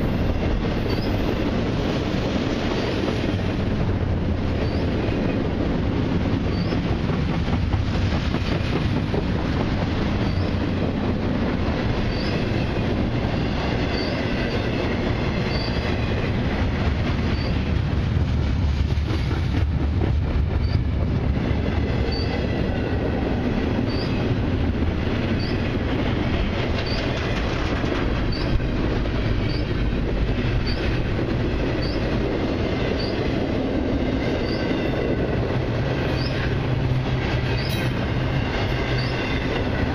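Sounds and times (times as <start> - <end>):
train wheels rumbling on rails: 0.0 - 39.9
high wheel squeals: 0.9 - 1.2, 10.2 - 10.6, 38.8 - 39.5.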